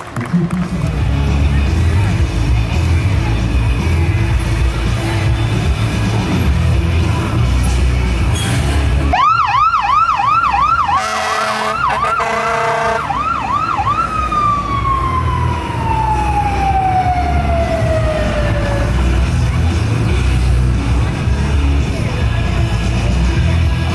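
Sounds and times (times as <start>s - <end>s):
fire truck siren yelping: 9.1s - 19.5s
horn-like blast: 10.9s - 13.2s.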